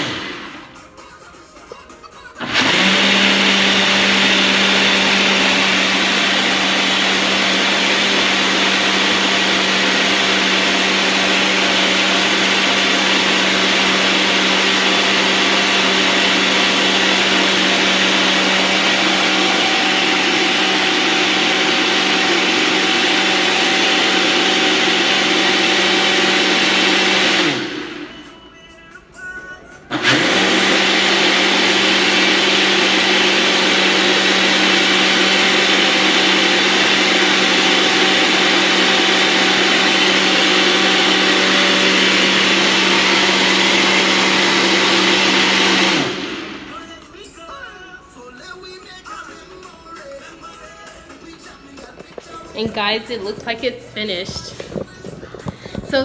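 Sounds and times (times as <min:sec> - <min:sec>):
blender motor whirring: 0:00.0 - 0:00.8, 0:02.4 - 0:28.3, 0:29.9 - 0:46.8.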